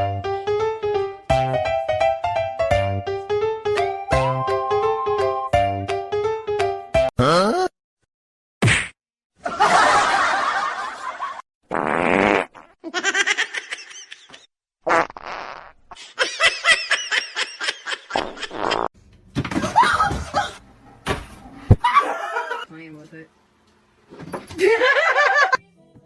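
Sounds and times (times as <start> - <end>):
people laughing: 9.4 - 11.4, 21.8 - 22.7, 24.6 - 25.6.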